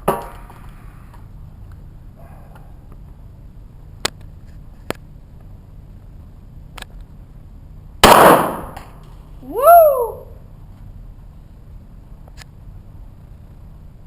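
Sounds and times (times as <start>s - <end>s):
loud gunshot bang: 8.0s - 9.0s
pistol shots cracking: 8.0s - 9.0s.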